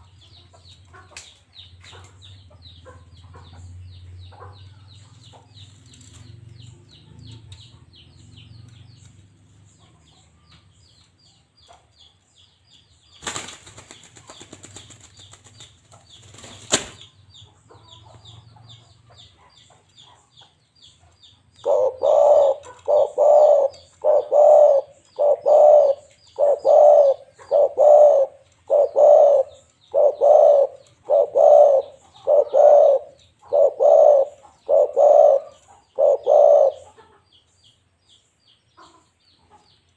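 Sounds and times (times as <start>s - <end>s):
small bird chirping: 0.0s - 39.9s
dove cooing: 21.6s - 37.0s.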